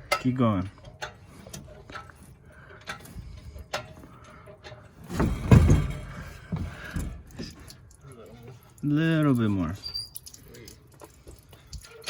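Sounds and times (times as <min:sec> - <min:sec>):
engine creaking clunk on lift: 0:05.0 - 0:07.2.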